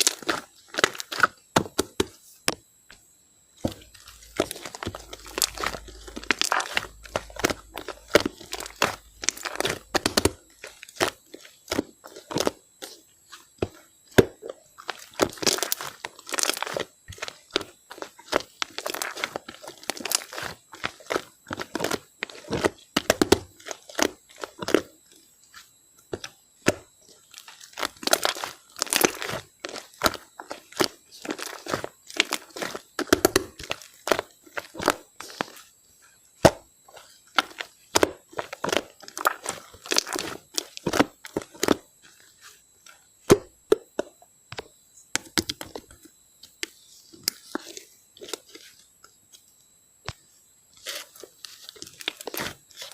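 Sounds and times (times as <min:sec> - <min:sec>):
slime crackling and popping: 0:00.0 - 0:02.1, 0:03.8 - 0:35.7, 0:36.4 - 0:42.5, 0:50.8 - 0:52.9.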